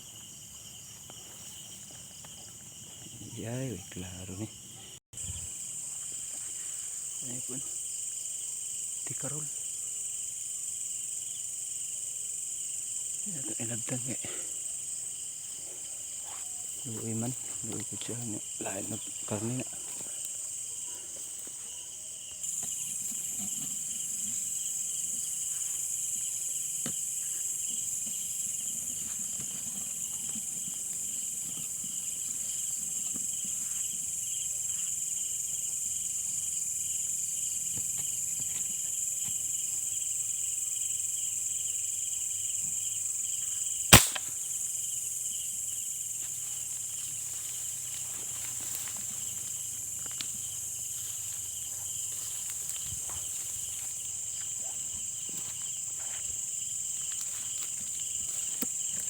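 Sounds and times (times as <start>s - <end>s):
crickets trilling: 0.0s - 59.0s
sharp crack: 43.9s - 44.4s.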